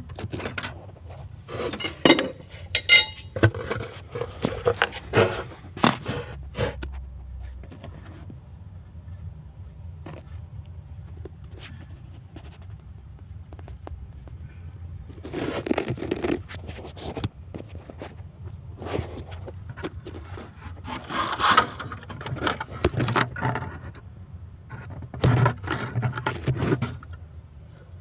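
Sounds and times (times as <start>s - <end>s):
scraping and rattling: 0.0s - 7.0s
low steady hum: 0.0s - 28.0s
clicks and knocks: 1.6s - 3.8s.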